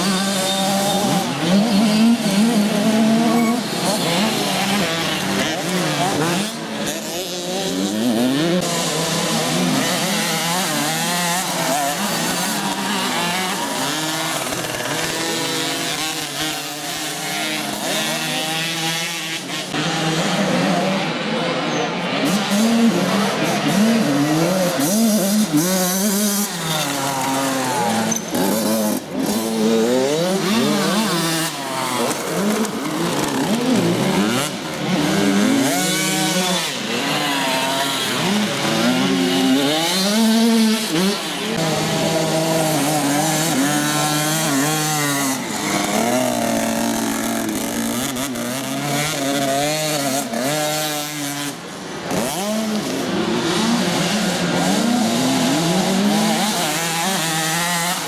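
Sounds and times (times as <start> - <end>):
motocross bike engines revving: 0.0 - 58.0.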